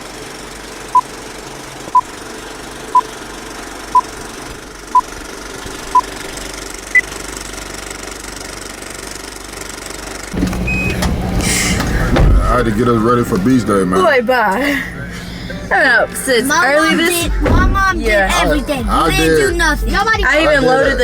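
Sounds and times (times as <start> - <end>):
steady low rumble: 10.4 - 16.6
electronic beeps: 10.6 - 11.4.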